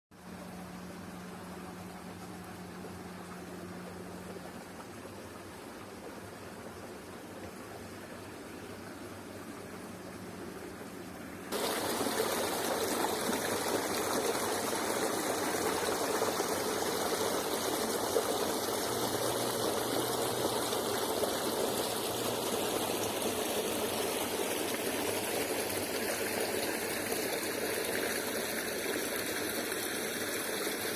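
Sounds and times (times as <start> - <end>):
faint hiss: 0.2 - 30.9
stream water flowing: 0.2 - 30.9.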